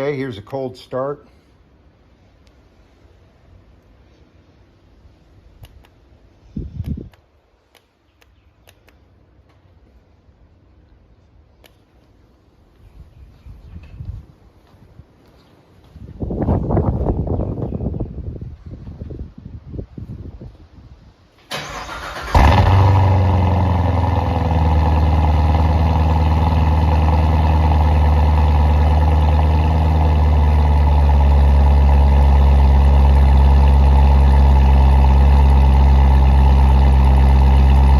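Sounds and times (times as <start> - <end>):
vehicle engine starting and idling: 21.4 - 37.9.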